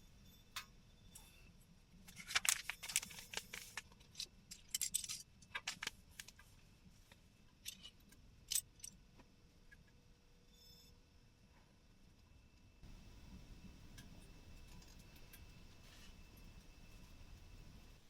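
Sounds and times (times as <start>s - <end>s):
small hard objects clinking: 2.1s - 6.2s.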